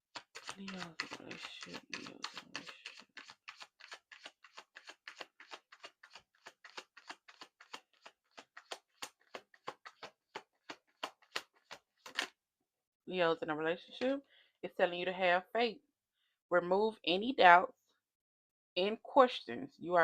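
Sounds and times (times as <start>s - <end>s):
cards being shuffled: 0.1s - 12.3s.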